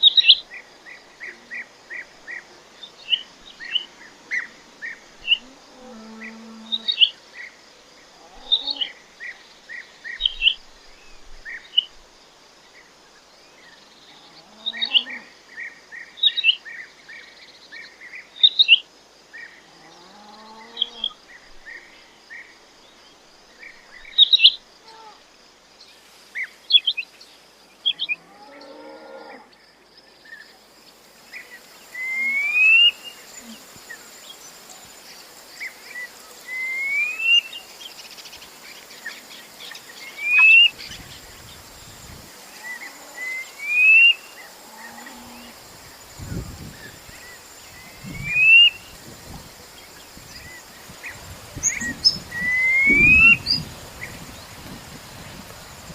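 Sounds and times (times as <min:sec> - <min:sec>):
rising whistled call: 0:40.2 - 0:40.8, 0:43.2 - 0:44.3, 0:48.2 - 0:48.9, 0:51.6 - 0:53.6.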